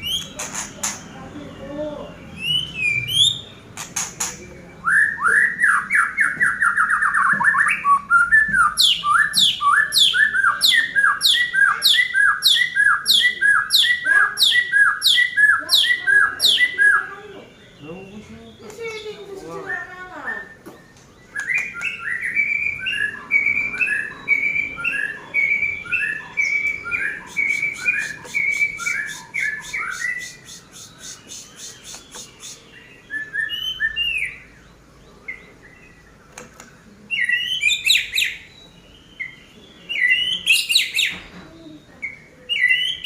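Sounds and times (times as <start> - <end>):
bird whistled song: 0.0 - 1.1, 1.8 - 36.4, 37.1 - 43.0
bird chips and ticks: 0.1 - 1.1, 3.8 - 4.5, 26.6 - 32.7
harsh rasping bird notes: 21.4 - 34.4.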